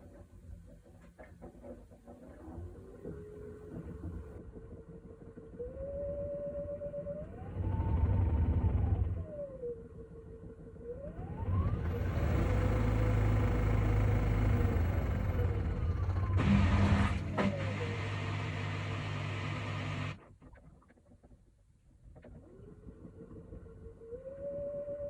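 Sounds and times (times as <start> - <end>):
washing machine motor whine: 2.5 - 20.2, 23.6 - 25.0.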